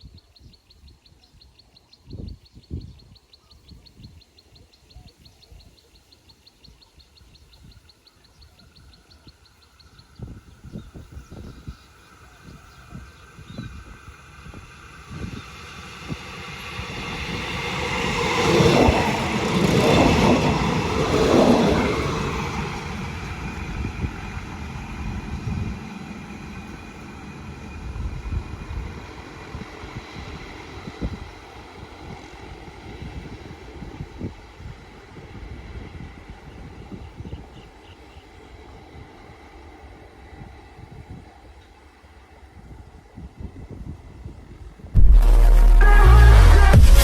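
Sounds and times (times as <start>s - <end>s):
diesel train passing: 9.0s - 37.1s.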